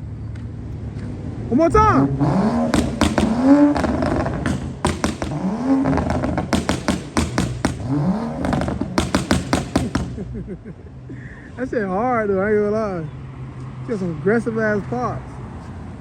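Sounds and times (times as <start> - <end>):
car engine revving: 0.5 - 10.5
exhaust pops and crackles: 1.6 - 10.4.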